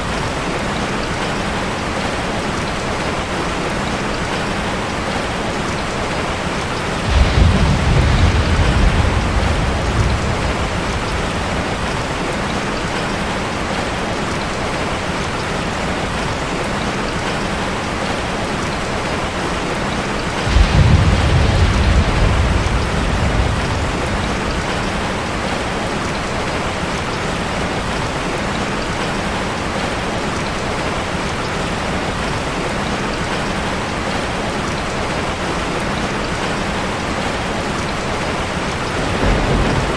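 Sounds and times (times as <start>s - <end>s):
rain on a metal roof: 0.0s - 39.9s
thunder rumbling: 6.7s - 13.6s, 20.2s - 27.1s, 38.2s - 39.9s.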